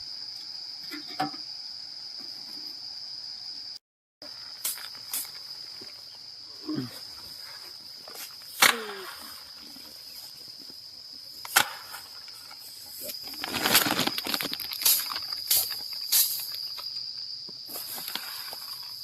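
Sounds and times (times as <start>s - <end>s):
crickets chirping: 0.0s - 19.0s
rustling clatter: 13.3s - 16.6s.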